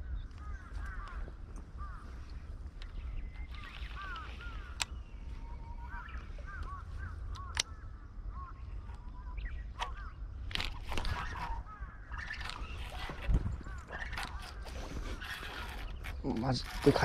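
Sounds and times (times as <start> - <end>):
birds chirping: 0.0 - 17.0
sharp clicks: 2.7 - 5.0, 6.4 - 7.9, 8.8 - 17.0.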